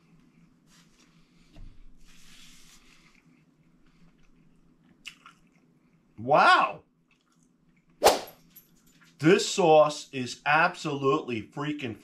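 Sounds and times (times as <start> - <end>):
faint steady hum: 0.0 - 12.0
chicken wing being chewed: 4.2 - 5.8.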